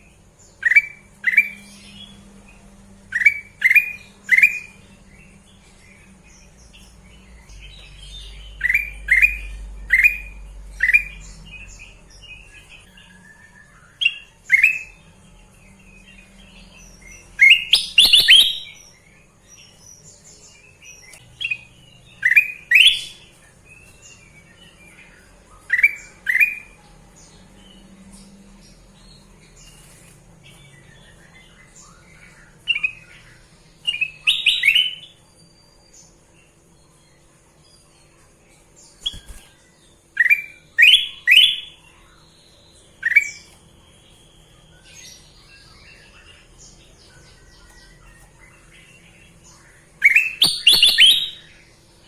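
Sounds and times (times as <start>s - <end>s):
faint bird chirps: 0.0s - 52.0s
bulbul whistled song: 17.4s - 18.8s, 40.2s - 41.8s, 50.0s - 51.6s
soft high chirps: 17.4s - 18.8s, 50.1s - 51.6s.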